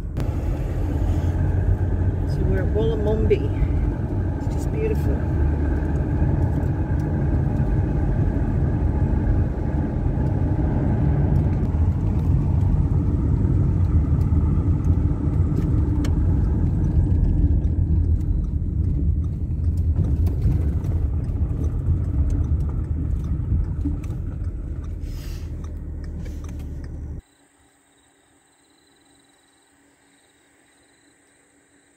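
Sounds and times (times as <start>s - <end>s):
car engine and tyre rumble: 0.0s - 27.6s.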